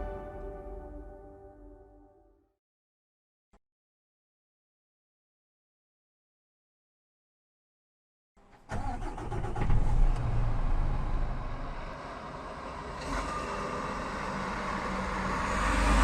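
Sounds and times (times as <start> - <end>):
truck engine cranking: 8.7 - 11.7
truck engine rumbling: 8.8 - 16.0.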